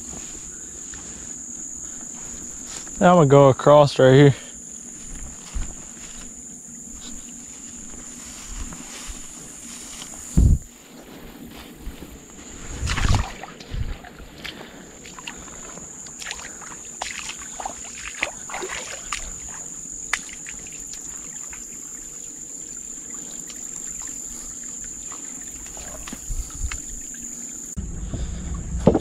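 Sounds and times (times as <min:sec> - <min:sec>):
creek water splashing while wading: 0:04.7 - 0:27.8.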